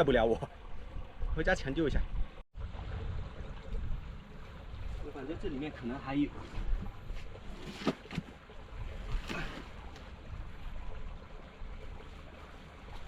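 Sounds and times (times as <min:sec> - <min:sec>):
wind rumble on microphone: 0:00.0 - 0:07.6
knocks and scrapes: 0:06.4 - 0:08.4.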